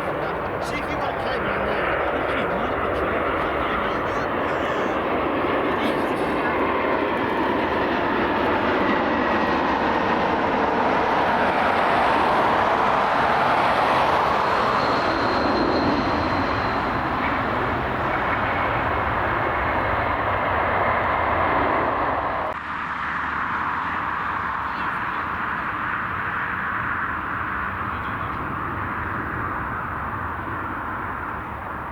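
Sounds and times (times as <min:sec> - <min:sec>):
airliner engines roaring: 0:00.0 - 0:31.9
faint high whine: 0:13.9 - 0:20.2.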